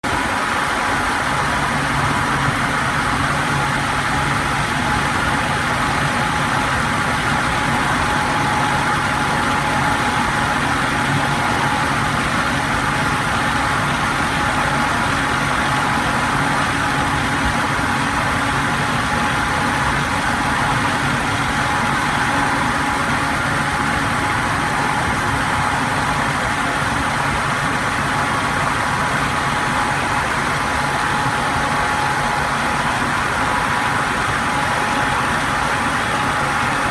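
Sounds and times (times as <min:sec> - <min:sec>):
electric fan running: 0:00.0 - 0:36.9.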